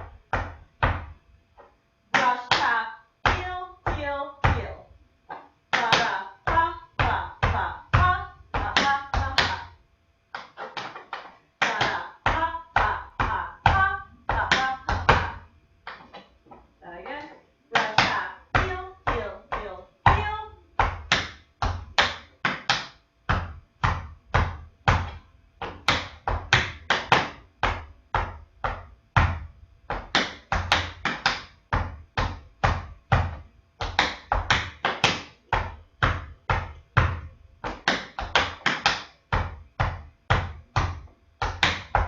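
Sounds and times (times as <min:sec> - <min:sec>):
tap shoes on hard floor: 0:10.3 - 0:16.7.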